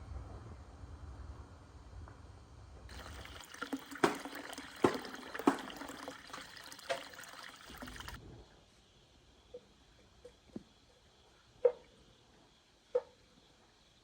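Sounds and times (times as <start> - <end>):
water pouring and trickling: 2.9 - 8.2.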